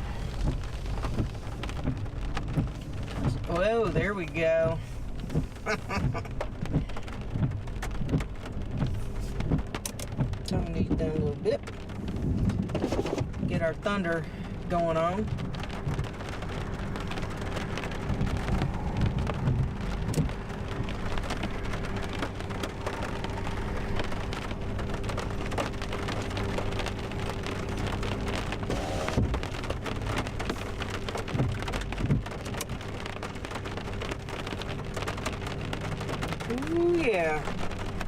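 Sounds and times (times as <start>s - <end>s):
heavy rain on vehicle: 0.0s - 38.0s
low thunder rumbles: 11.7s - 33.2s.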